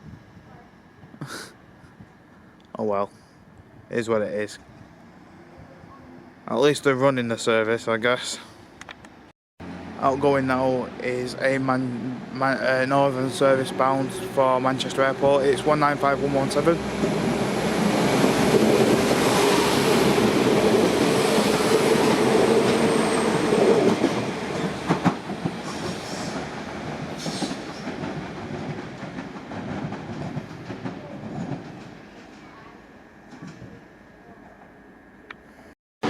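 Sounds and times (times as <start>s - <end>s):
diesel train engines: 0.1s - 35.8s
train wheels on rails: 11.3s - 32.7s.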